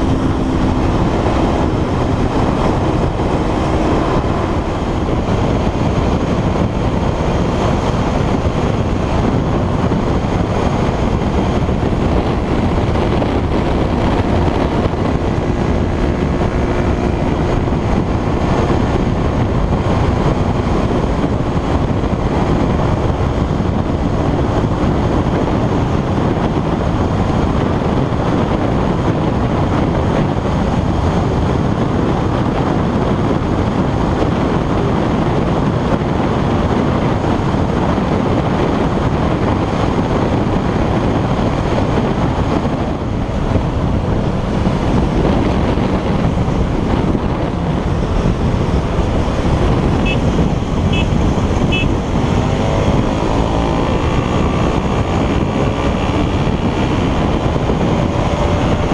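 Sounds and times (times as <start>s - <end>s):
wind rushing on microphone: 0.0s - 58.9s.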